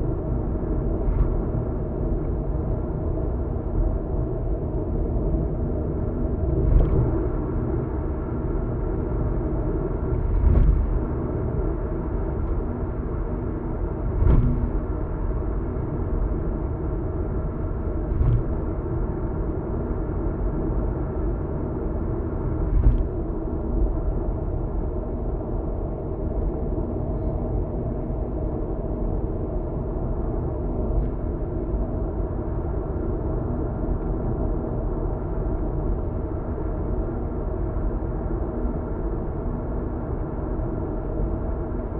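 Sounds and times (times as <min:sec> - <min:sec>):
tyre and road rumble: 0:14.0 - 0:15.4, 0:18.0 - 0:18.8, 0:22.6 - 0:23.4.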